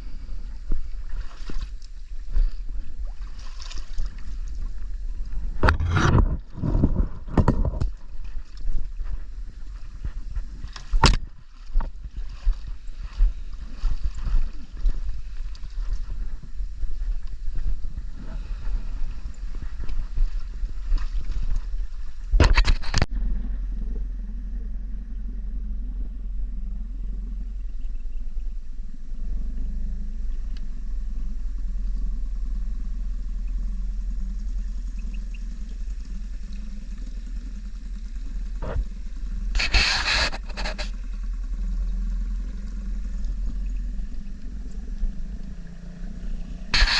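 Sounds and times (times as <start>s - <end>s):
boat motor humming: 0.0s - 46.9s
wind buffeting microphone: 0.0s - 46.9s
short hiss bursts: 39.5s - 40.9s.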